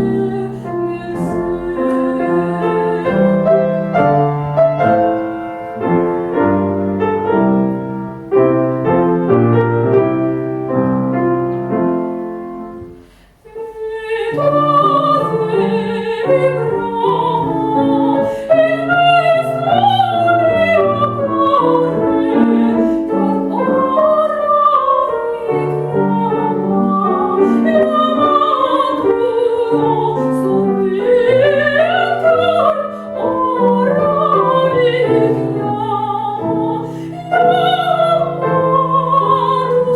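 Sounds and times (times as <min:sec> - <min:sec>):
woman singing operatically: 0:00.0 - 0:04.1, 0:13.5 - 0:39.9
piano chords: 0:00.0 - 0:39.9.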